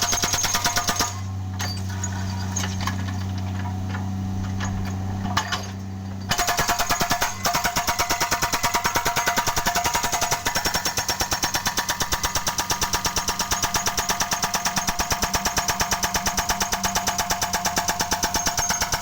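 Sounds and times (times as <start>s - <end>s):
hydraulic breaker hammering concrete: 0.0s - 1.3s, 6.3s - 19.0s
excavator engine humming: 1.2s - 6.4s.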